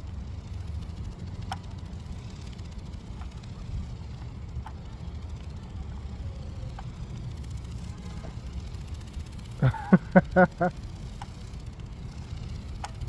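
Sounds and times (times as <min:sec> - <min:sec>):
faint clicks: 0:02.8 - 0:05.6, 0:06.3 - 0:07.8, 0:11.0 - 0:13.0.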